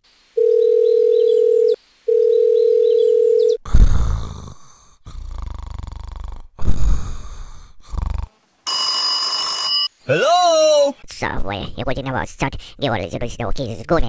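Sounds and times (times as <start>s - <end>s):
telephone calling tone beeps: 0.4s - 3.6s, 8.7s - 9.9s.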